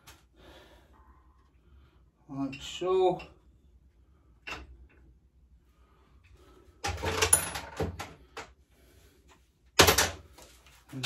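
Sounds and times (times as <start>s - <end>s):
knocks and rattles of tools: 6.8s - 8.6s, 9.8s - 10.4s.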